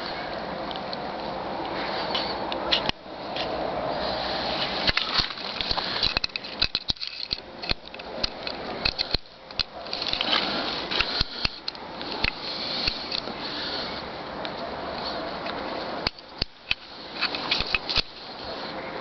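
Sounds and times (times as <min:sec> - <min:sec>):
rustling: 0:01.2 - 0:15.9
small clicks and knocks: 0:04.9 - 0:13.4, 0:15.4 - 0:18.2.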